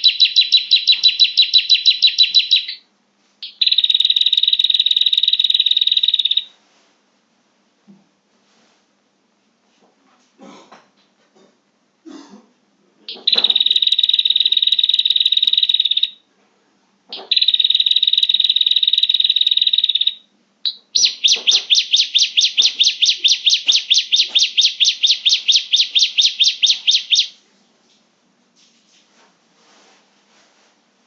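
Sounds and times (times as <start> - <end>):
bird buzzy trills: 0.0 - 2.8, 17.2 - 27.4
bird sharp repeated notes: 0.0 - 2.8, 3.4 - 6.5, 13.1 - 16.2, 17.1 - 27.4.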